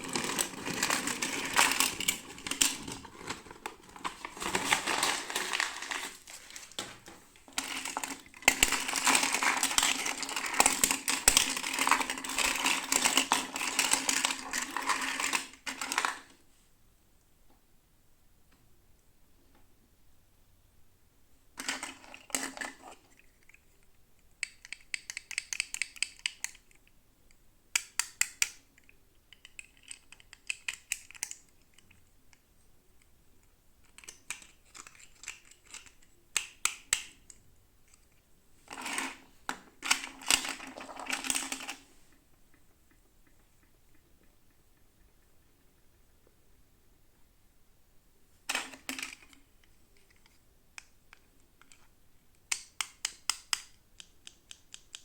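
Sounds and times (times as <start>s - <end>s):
plastic packaging clicking and crackling: 0.0s - 16.3s.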